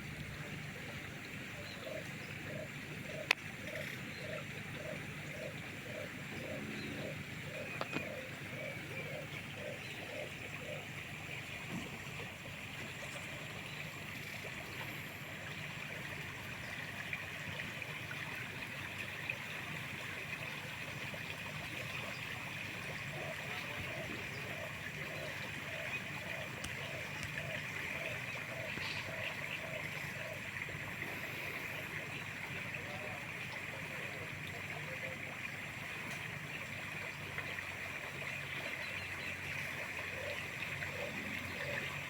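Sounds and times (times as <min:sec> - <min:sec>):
bird calling low note: 0:01.6 - 0:15.8
river water rushing: 0:29.0 - 0:33.6.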